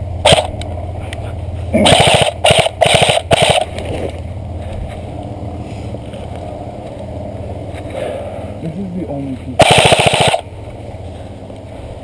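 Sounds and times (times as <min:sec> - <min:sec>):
airsoft gun automatic bursts: 0:00.2 - 0:00.5, 0:01.8 - 0:03.7, 0:09.6 - 0:10.5.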